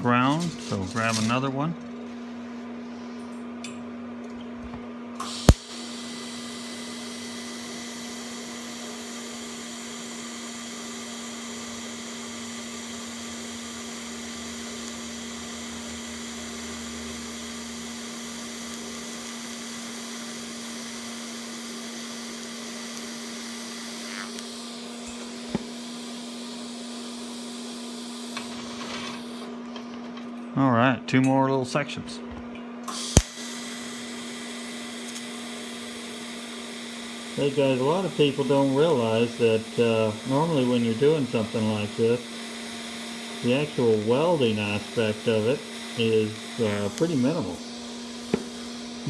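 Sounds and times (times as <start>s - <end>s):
welding arc hiss: 5.2s - 29.5s, 32.9s - 49.0s
arc strike click: 5.3s - 5.8s
steady hum: 37.4s - 49.0s.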